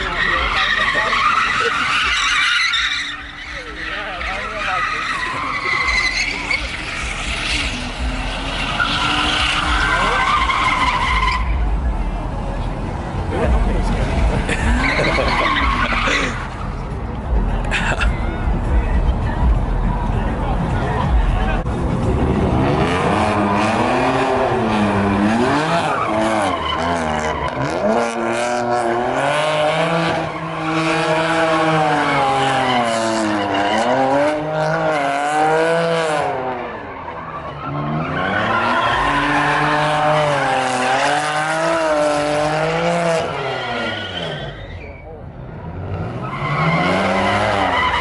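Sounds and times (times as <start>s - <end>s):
tyres squealing: 0.0s - 11.6s, 14.5s - 16.8s, 22.9s - 28.3s, 36.2s - 45.2s, 46.2s - 48.0s
car engine revving: 0.0s - 48.0s.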